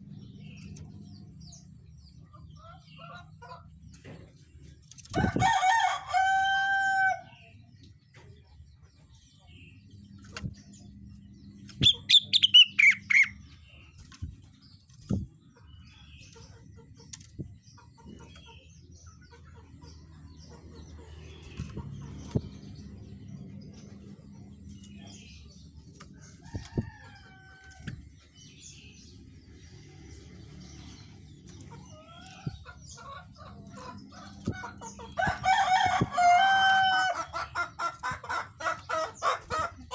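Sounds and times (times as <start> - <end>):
steady low hum: 0.0 - 6.2, 7.1 - 39.9
bird calls: 11.3 - 27.7, 30.6 - 39.9.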